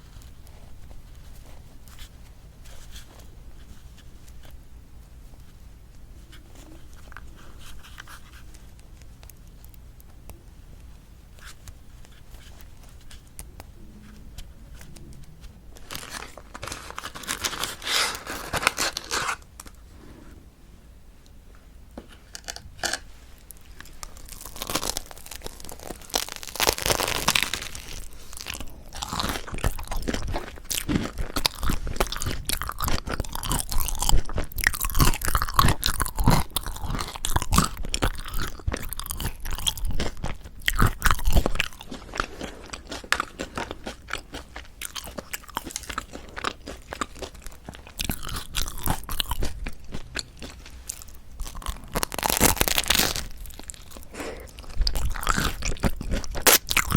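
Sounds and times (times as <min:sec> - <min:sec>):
crunching bites of crusty bread: 0:15.8 - 0:19.8, 0:22.1 - 0:56.9.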